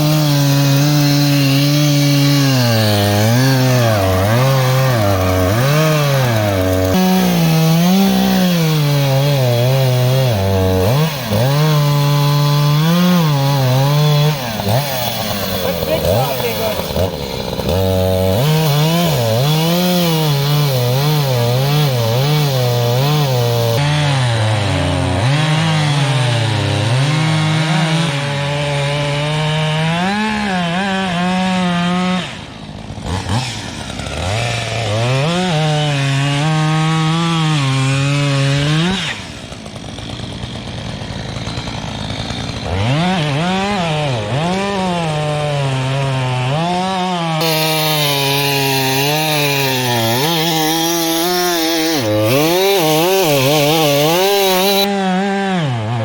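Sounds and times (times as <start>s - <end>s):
reciprocating saw cutting log: 0.0s - 56.0s.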